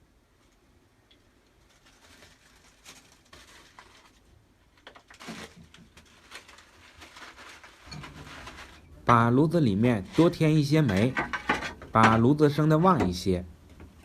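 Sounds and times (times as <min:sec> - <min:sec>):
clinks and scrapes at coal stove: 0:07.8 - 0:09.1, 0:10.0 - 0:13.0.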